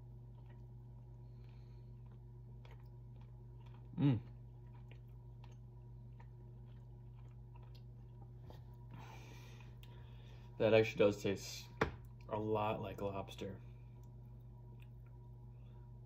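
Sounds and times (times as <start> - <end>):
person chewing: 0.0 - 10.3, 13.8 - 16.0
low electrical hum: 0.0 - 16.0
person humming: 4.0 - 4.3.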